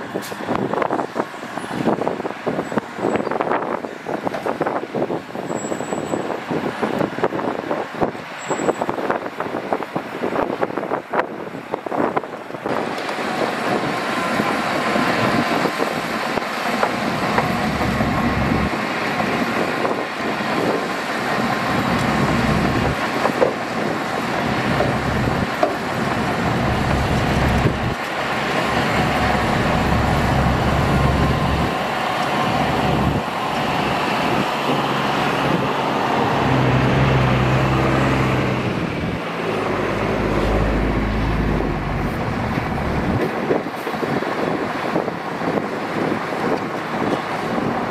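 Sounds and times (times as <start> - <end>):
diesel machinery engine running: 12.6 - 47.9.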